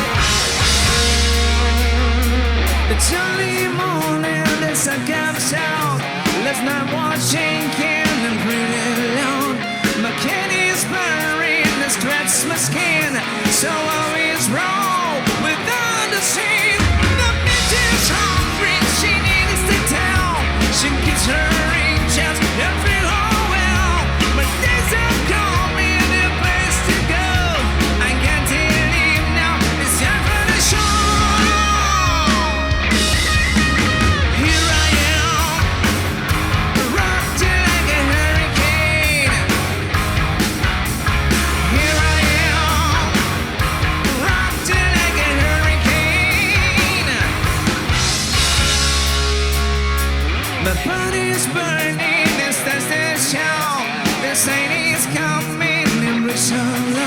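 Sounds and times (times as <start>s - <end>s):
deep bass: 0.0s - 3.2s, 16.8s - 51.1s
lead electric guitar bending notes: 0.0s - 57.0s
rock band playing: 0.0s - 57.0s.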